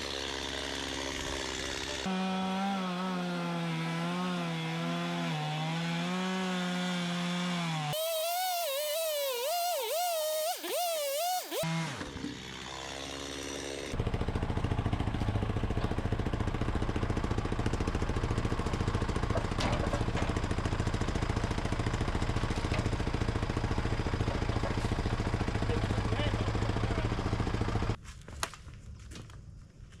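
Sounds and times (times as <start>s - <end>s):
engine running with rapid pulse: 8.0s - 11.7s.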